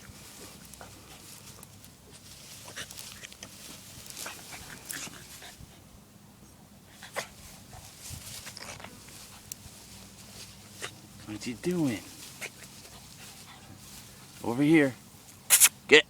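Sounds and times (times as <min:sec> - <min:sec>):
rustling in grass: 0:00.0 - 0:15.9.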